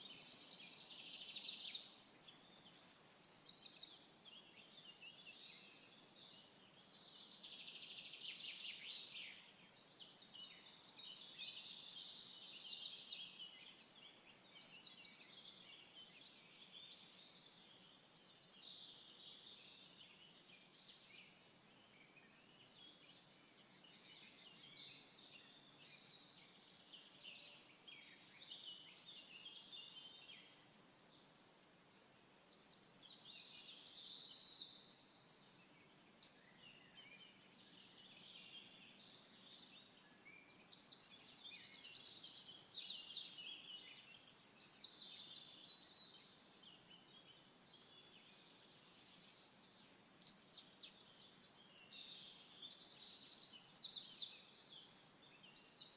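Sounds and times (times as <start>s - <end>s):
birds chirping and trilling: 32.3s - 55.9s.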